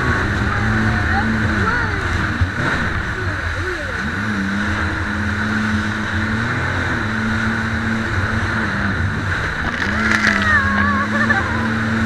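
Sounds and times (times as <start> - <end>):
jet ski engine running: 0.0 - 12.0
wind: 0.0 - 12.0
water rushing: 9.1 - 12.0.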